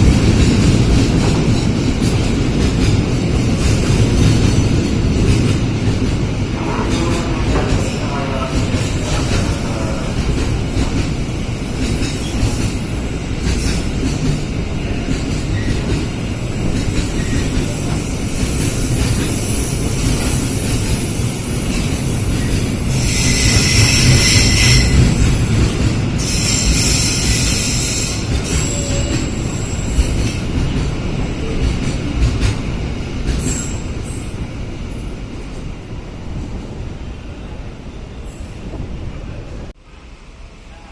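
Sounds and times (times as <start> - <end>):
train wheels rumbling on track: 0.0 - 40.9
high wheel screech: 22.9 - 25.1.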